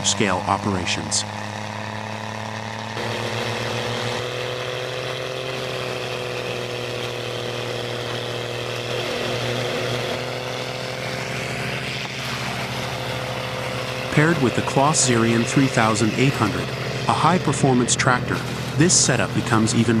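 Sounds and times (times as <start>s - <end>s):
wood chipper droning: 0.0s - 20.0s.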